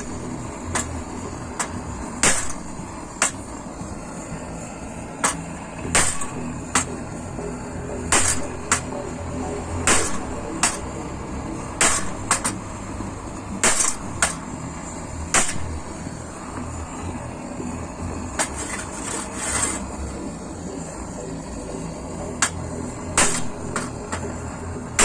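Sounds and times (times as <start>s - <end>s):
hammer striking metal grate: 0.0s - 1.0s, 1.6s - 3.5s, 5.2s - 7.0s, 8.1s - 9.0s, 9.8s - 11.0s, 11.8s - 12.7s, 13.6s - 14.5s, 15.3s - 15.9s, 18.3s - 19.8s, 22.4s - 24.3s.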